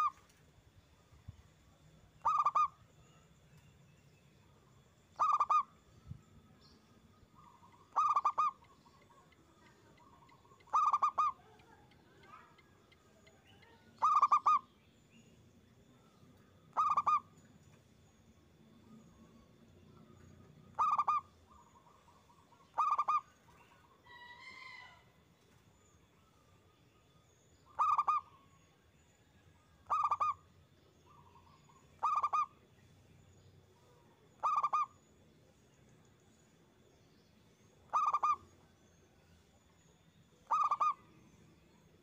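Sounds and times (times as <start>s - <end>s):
faint high bird call: 7.4s - 14.7s, 20.2s - 25.2s, 40.4s - 41.0s
dove stuttering coo: 7.9s - 8.6s, 10.7s - 11.4s, 20.8s - 21.2s, 22.8s - 23.2s.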